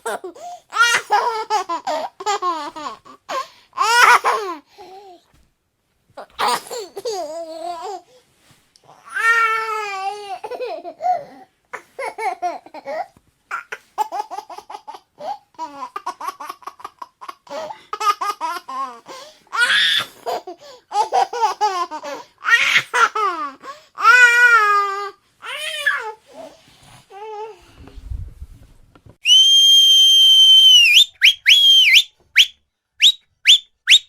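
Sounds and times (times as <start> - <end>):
small child laughing and babbling: 6.2 - 8.1, 8.9 - 27.6.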